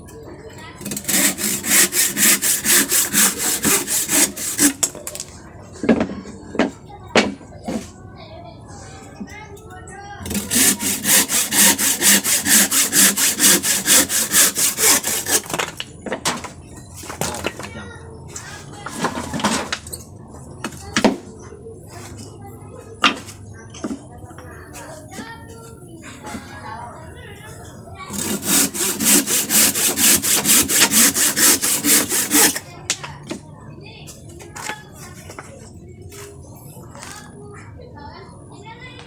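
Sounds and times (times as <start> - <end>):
hand saw cutting wood: 0.8 - 5.2, 10.2 - 15.8, 28.1 - 32.6.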